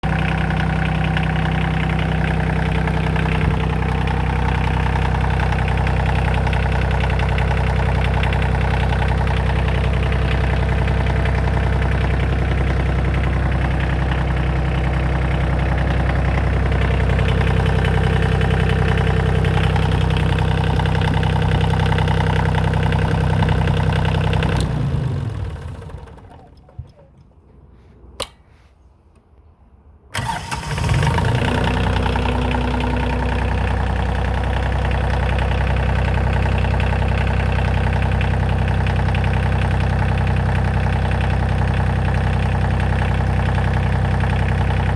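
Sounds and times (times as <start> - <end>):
short clicks: 28.2 - 28.5
hydraulic power pack engine running: 30.1 - 35.4.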